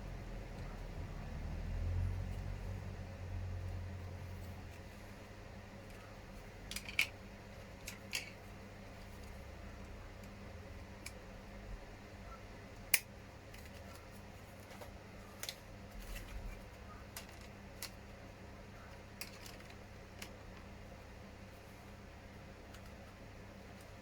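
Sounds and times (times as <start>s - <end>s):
faint steady hum: 0.0s - 24.0s
plastic parts clicking and tapping: 6.6s - 7.2s, 7.8s - 8.4s, 17.1s - 18.0s, 18.9s - 20.7s.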